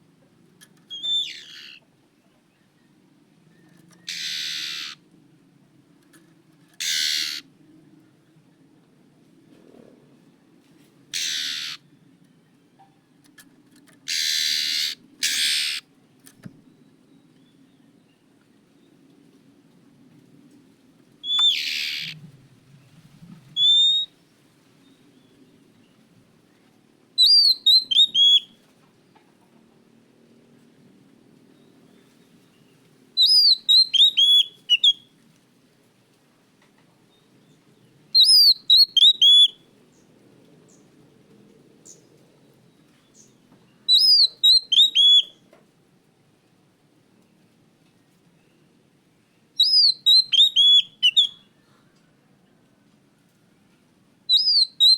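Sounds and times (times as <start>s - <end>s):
bird giving harsh rasping calls: 0.9s - 1.8s, 4.1s - 5.0s, 6.8s - 7.4s, 11.1s - 11.8s, 14.1s - 15.8s, 21.3s - 22.2s
bird whistling song: 0.9s - 1.8s, 3.5s - 5.0s, 6.8s - 7.4s, 11.2s - 11.8s, 21.2s - 22.2s, 23.6s - 24.1s, 27.2s - 28.6s, 33.2s - 35.1s, 38.2s - 39.6s, 43.9s - 45.4s, 49.6s - 51.5s, 54.3s - 54.9s.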